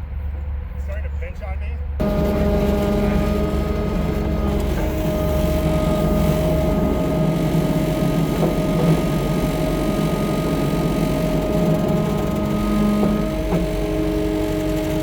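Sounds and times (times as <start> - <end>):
chainsaw cutting wood: 2.0 - 15.0.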